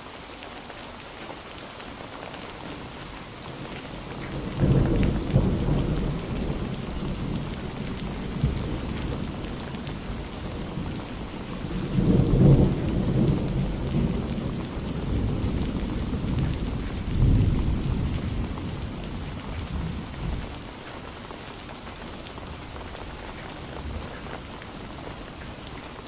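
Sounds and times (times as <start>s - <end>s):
steady rain falling: 0.0s - 26.0s
thunder rolling: 4.2s - 20.4s.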